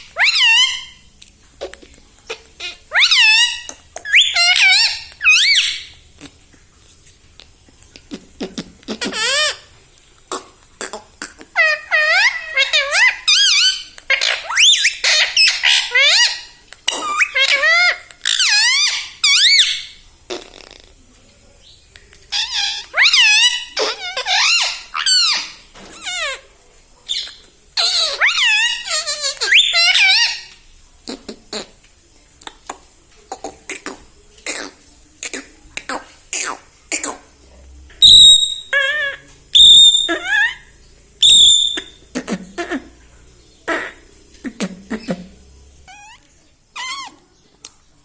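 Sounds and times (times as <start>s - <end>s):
parakeet shrill squeaky calls: 0.0s - 1.0s, 2.6s - 5.9s, 11.6s - 20.0s, 22.3s - 26.4s, 27.1s - 30.6s, 38.0s - 42.0s, 45.9s - 46.2s, 46.8s - 47.2s.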